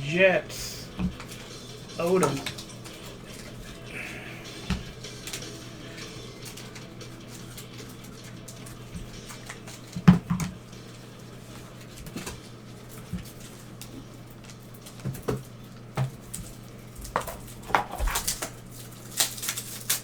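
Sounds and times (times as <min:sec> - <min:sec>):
cards clicking and rustling: 0:00.8 - 0:20.0.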